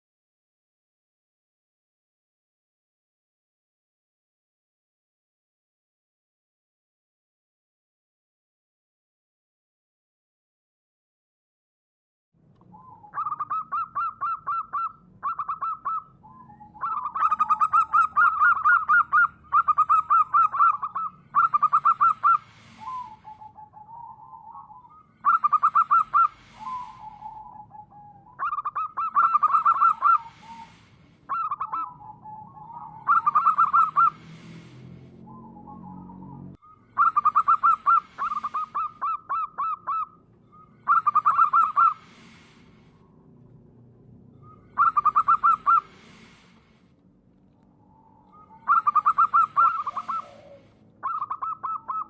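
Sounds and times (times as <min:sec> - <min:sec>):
dove cooing: 0:12.7 - 0:34.7, 0:35.3 - 0:42.6, 0:44.4 - 0:46.5, 0:48.2 - 0:52.0.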